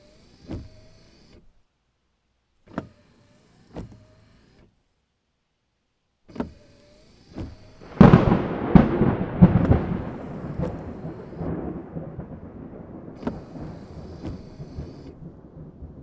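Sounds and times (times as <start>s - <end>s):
wiper motor whine and click: 0.0s - 1.7s, 2.6s - 4.8s, 6.3s - 15.9s
rain on a car roof: 7.3s - 16.0s
thunder rumble: 7.8s - 16.0s
thunderclap: 7.8s - 16.0s.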